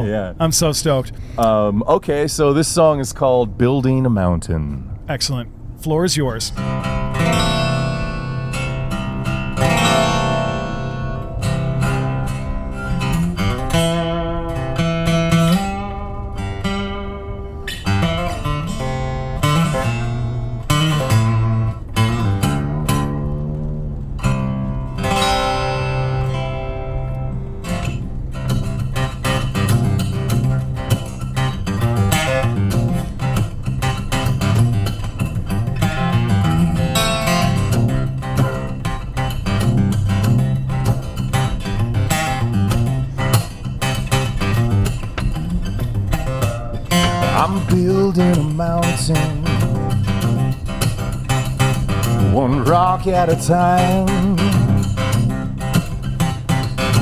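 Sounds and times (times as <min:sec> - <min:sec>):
solo guitar playing: 0:00.0 - 0:57.0.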